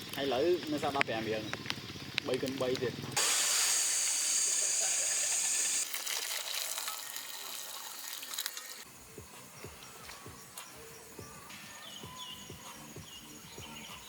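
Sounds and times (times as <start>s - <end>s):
loud steady hiss: 0.0s - 5.8s
crackling sizzle: 0.0s - 10.7s.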